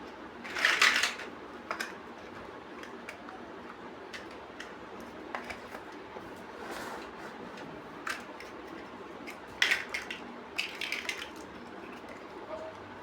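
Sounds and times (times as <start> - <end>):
plastic bricks clicking together: 0.4 - 2.0, 9.2 - 12.1.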